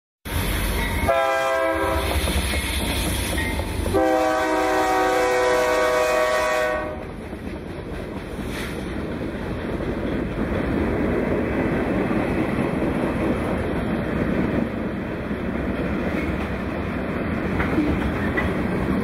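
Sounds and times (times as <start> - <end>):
rumble of passing train: 0.3 - 19.0
locomotive air horn blasts: 1.0 - 2.1, 3.9 - 7.1.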